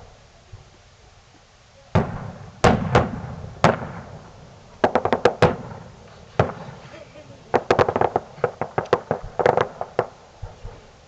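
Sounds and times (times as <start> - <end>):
firework bangs with echo: 1.9 - 10.9
sharp firework cracks: 1.9 - 11.0.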